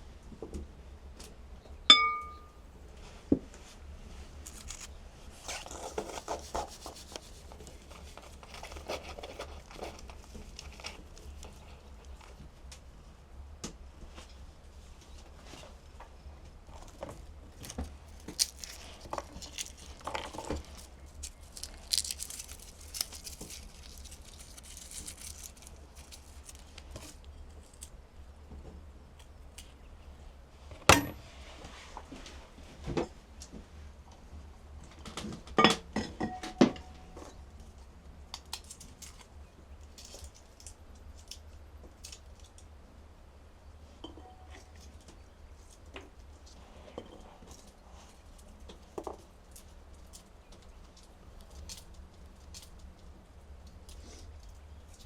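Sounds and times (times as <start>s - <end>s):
small hard objects clinking: 17.6s - 27.9s.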